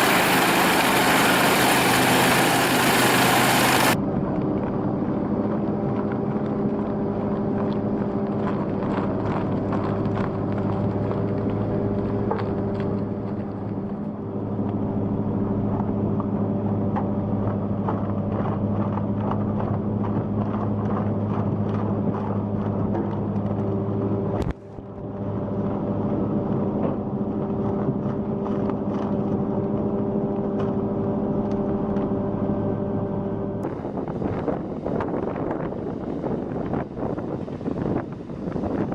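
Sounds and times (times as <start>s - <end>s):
rough rushing sound: 0.0s - 4.0s
wood chipper engine running: 0.0s - 4.0s
wood chipper engine droning: 0.0s - 18.8s.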